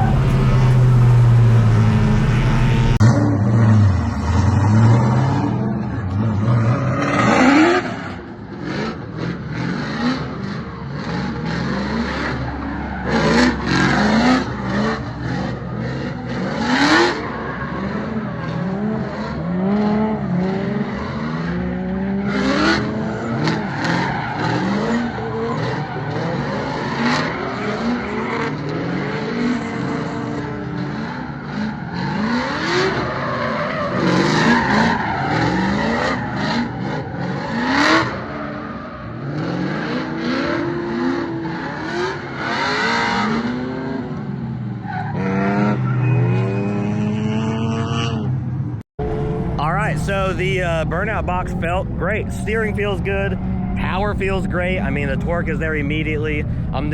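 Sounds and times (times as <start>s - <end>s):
tire squeal: 0.0s - 3.2s, 10.4s - 43.6s, 44.6s - 48.0s
car engine revving: 0.0s - 31.4s, 49.0s - 56.9s.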